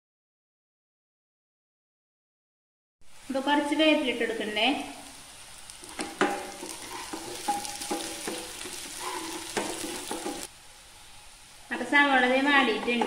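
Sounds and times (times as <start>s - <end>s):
onions sizzling in oil: 3.0s - 13.0s
wooden spatula knocking on pan: 5.8s - 10.5s.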